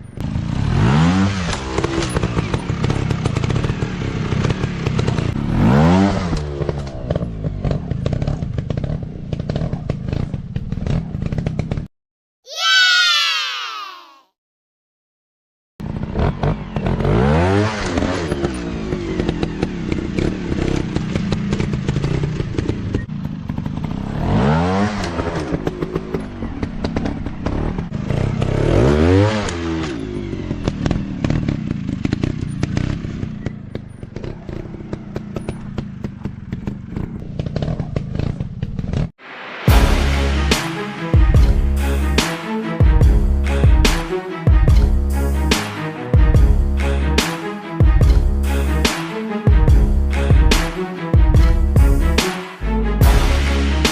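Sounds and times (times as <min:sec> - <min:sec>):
engine clatter: 0:00.0 - 0:11.9, 0:15.8 - 0:39.1
dirt bike engine revving: 0:00.2 - 0:11.8, 0:15.8 - 0:38.4, 0:39.7 - 0:53.9.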